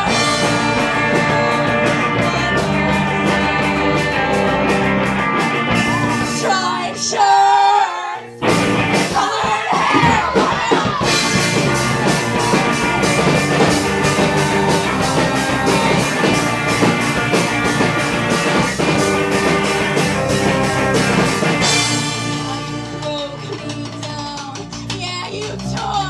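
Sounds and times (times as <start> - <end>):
rock band playing live: 0.0 - 26.0
drum and cymbal hits: 8.4 - 26.0.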